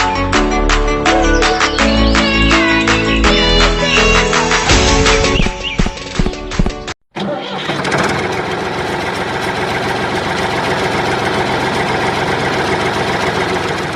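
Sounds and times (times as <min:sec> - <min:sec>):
music: 0:00.0 - 0:07.0
engine starting and running: 0:00.7 - 0:13.9.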